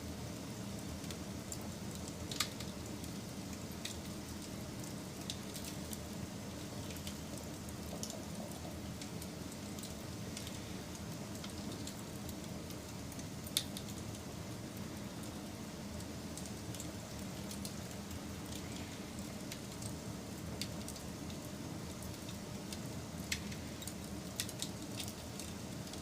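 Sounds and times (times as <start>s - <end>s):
wood fire rumbling and crackling: 0.0s - 26.0s.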